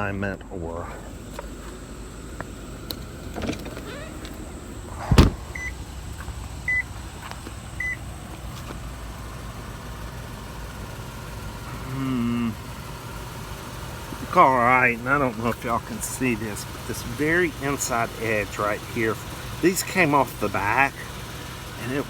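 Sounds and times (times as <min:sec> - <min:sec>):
steady low rumble: 0:00.0 - 0:21.2
heavy thump: 0:04.9 - 0:05.8.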